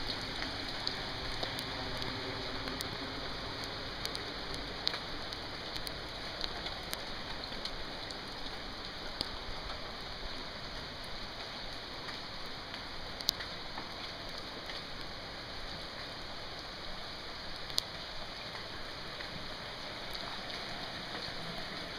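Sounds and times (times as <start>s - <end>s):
rain on wet pavement: 0.0s - 21.9s.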